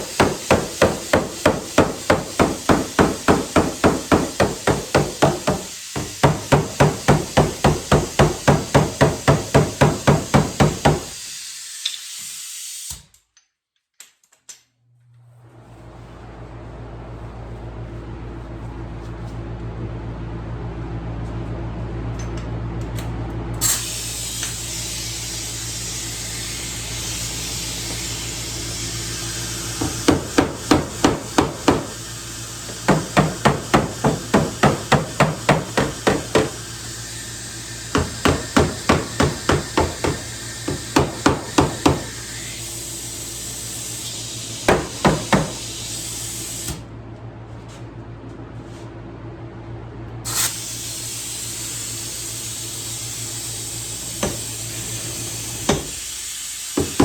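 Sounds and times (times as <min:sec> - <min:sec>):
hammer strikes on car door panel: 0:00.1 - 0:11.1, 0:29.8 - 0:31.9, 0:32.9 - 0:36.6, 0:38.0 - 0:42.1, 0:44.7 - 0:45.6, 0:56.8 - 0:57.0
hiss of air: 0:10.1 - 0:13.1, 0:23.6 - 0:46.9, 0:50.3 - 0:57.0.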